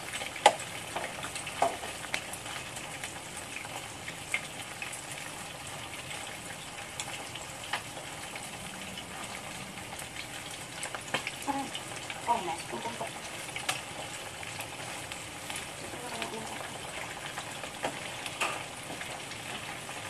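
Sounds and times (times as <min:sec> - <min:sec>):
shrimp sizzling in oil: 0:00.0 - 0:20.0
utensils clicking on pan: 0:17.8 - 0:19.6.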